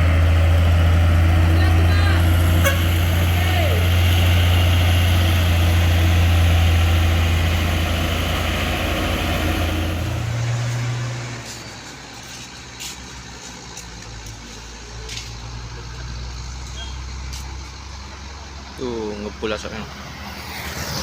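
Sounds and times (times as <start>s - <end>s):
diesel truck engine running: 0.0s - 21.0s.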